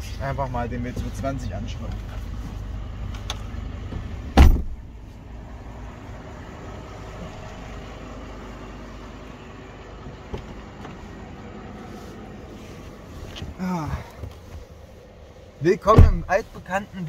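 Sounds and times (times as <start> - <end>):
diesel engine idling: 0.0 - 17.0
car door thudding shut: 4.3 - 4.9, 15.9 - 16.3.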